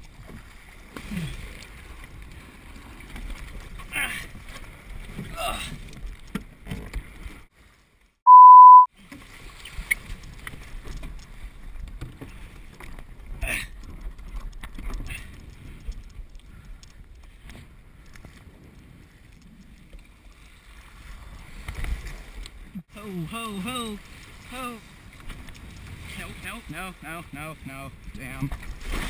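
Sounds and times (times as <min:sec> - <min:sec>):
water and wind rushing: 0:00.0 - 0:29.0
high beep: 0:08.3 - 0:08.9
knocks and splashes: 0:28.3 - 0:29.0.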